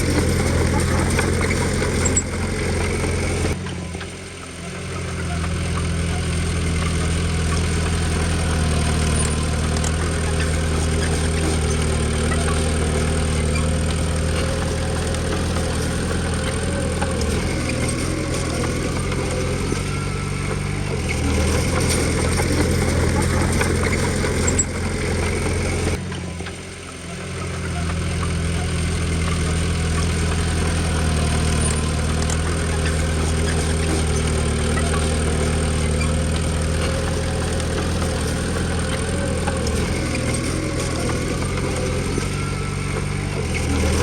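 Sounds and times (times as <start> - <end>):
diesel engine running steadily: 0.0 - 44.0.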